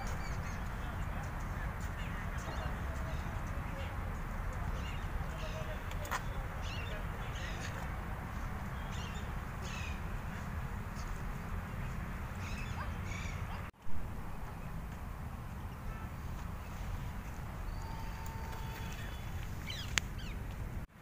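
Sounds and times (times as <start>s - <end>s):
birds calling: 0.0s - 13.7s, 15.6s - 20.7s
steady low rumble: 13.8s - 15.8s.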